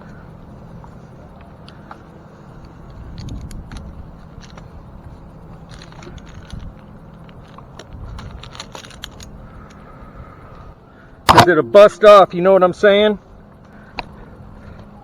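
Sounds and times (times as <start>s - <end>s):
wind rumble on microphone: 2.9s - 10.7s
metal gear clinking and rattling: 5.4s - 9.4s.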